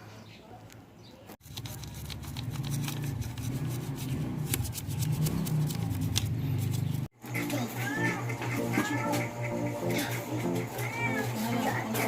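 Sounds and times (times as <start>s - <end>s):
scrubbing and scraping engine: 1.4s - 10.7s.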